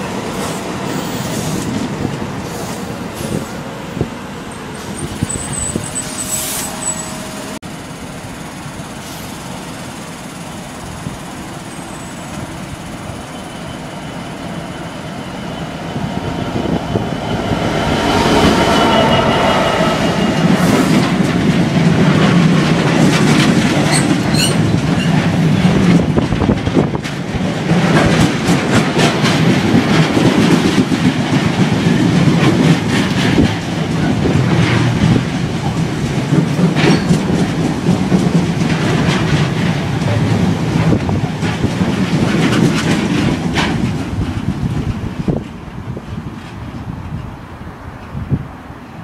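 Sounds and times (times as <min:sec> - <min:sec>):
diesel locomotive engine: 0:00.0 - 0:49.0
freight train wheels clattering: 0:08.2 - 0:47.4.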